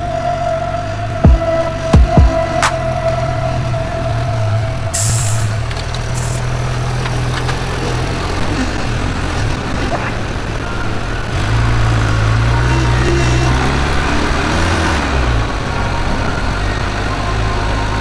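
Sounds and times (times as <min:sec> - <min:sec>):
vehicle engine running: 0:00.0 - 0:18.0
air hiss: 0:04.9 - 0:06.9.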